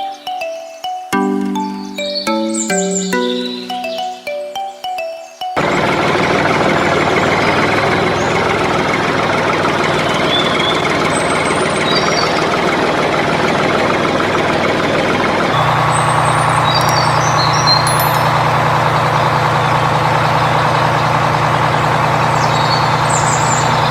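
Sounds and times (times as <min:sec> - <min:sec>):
tractor engine running: 0:05.6 - 0:23.9.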